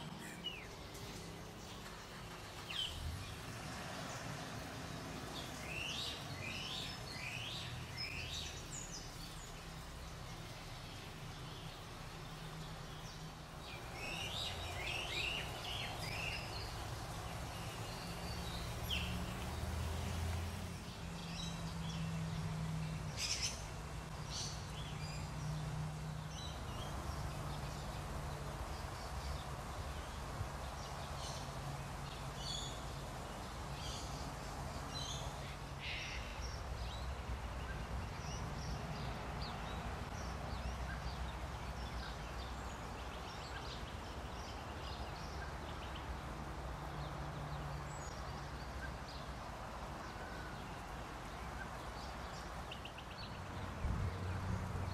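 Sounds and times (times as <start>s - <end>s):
birds chirping and calling: 5.4s - 19.5s.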